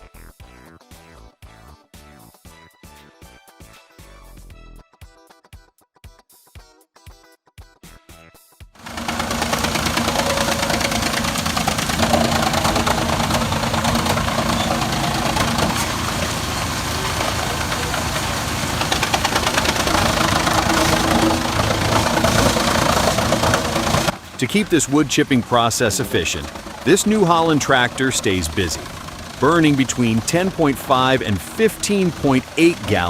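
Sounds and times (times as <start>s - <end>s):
tractor engine hum: 8.8s - 33.0s
wood chipper running: 8.8s - 33.0s.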